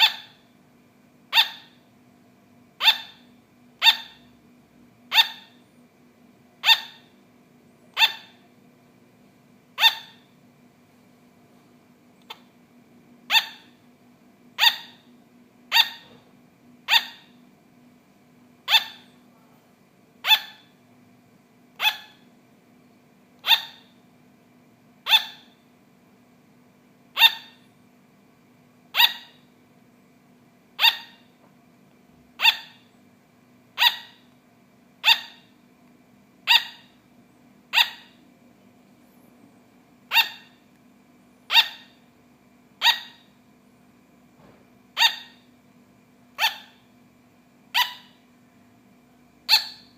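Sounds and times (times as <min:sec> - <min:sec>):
sugar glider barking: 0:00.0 - 0:00.5, 0:01.3 - 0:01.9, 0:02.8 - 0:04.4, 0:05.1 - 0:05.7, 0:06.6 - 0:07.2, 0:07.9 - 0:08.5, 0:09.7 - 0:10.4, 0:12.2 - 0:12.5, 0:13.2 - 0:13.8, 0:14.6 - 0:16.2, 0:16.8 - 0:17.4, 0:18.6 - 0:19.5, 0:20.2 - 0:20.8, 0:21.8 - 0:22.3, 0:23.4 - 0:24.0, 0:25.0 - 0:25.6, 0:27.1 - 0:27.7, 0:28.9 - 0:29.5, 0:30.8 - 0:31.4, 0:32.4 - 0:32.9, 0:33.7 - 0:34.3, 0:35.0 - 0:35.6, 0:36.4 - 0:37.0, 0:37.7 - 0:38.2, 0:40.1 - 0:40.6, 0:41.4 - 0:42.1, 0:42.8 - 0:43.4, 0:44.9 - 0:45.5, 0:46.3 - 0:46.9, 0:47.7 - 0:48.3, 0:49.4 - 0:49.9.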